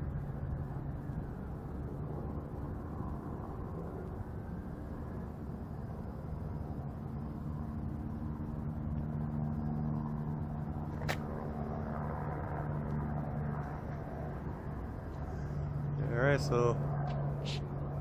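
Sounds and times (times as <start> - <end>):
vehicle engines humming: 0.0 - 18.0.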